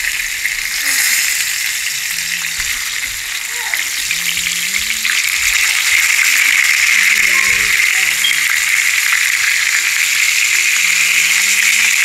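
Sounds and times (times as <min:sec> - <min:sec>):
fish sizzling in a skillet: 0:00.0 - 0:12.0.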